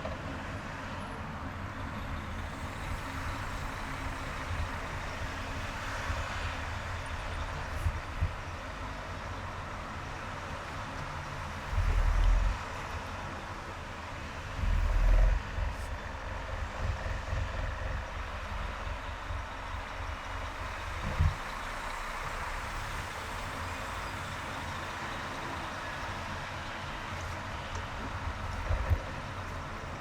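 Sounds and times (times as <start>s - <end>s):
car driving on highway: 0.0s - 30.0s
loud low rumbles: 11.6s - 13.0s, 14.4s - 22.8s.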